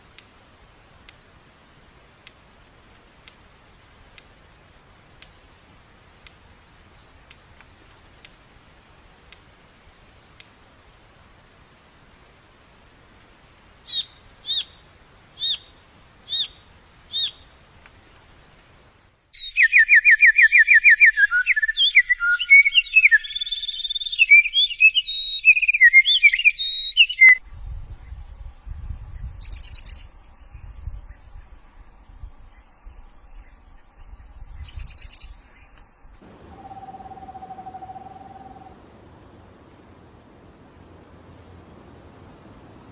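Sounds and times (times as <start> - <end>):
high insect trill: 0.0 - 19.4, 27.4 - 42.9
loud fast varied bird song: 13.9 - 14.8, 16.3 - 17.4, 19.4 - 28.2
short bird calls: 36.2 - 38.8.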